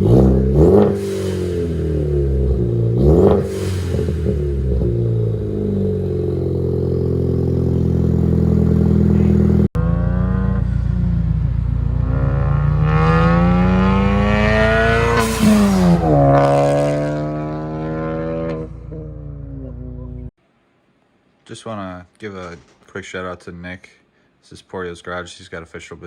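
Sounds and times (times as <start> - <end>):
car exhaust accelerating: 0.0 - 20.3.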